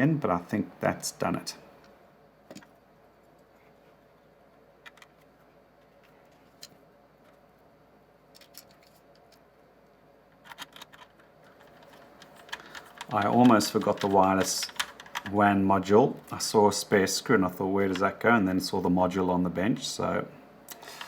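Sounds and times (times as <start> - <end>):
small parts clicking and tapping: 4.8 - 7.4, 8.3 - 9.4, 10.3 - 15.4.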